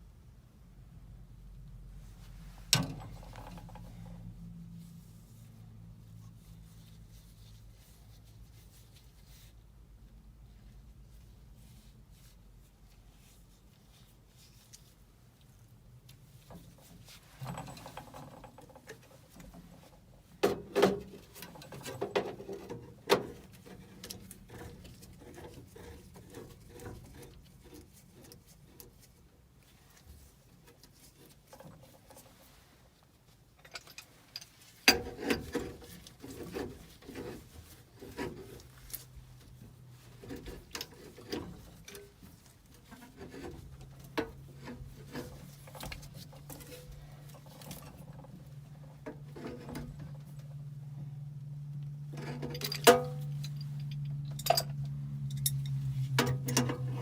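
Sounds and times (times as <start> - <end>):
hand tools clicking and scraping metal: 33.6 - 50.4, 52.2 - 57.0.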